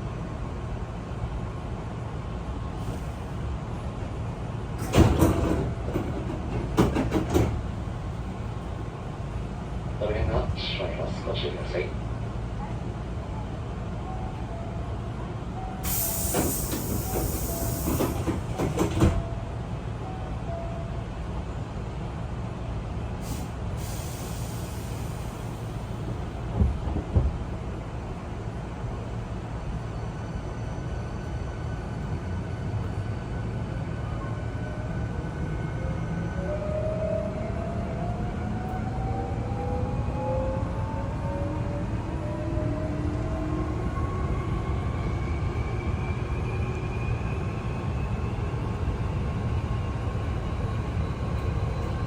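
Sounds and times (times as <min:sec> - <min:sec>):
low rumble of standing train: 0:00.0 - 0:52.0
train doors knocking: 0:04.8 - 0:07.8, 0:16.3 - 0:19.3
pneumatic door air hiss: 0:15.8 - 0:18.4, 0:23.2 - 0:25.5.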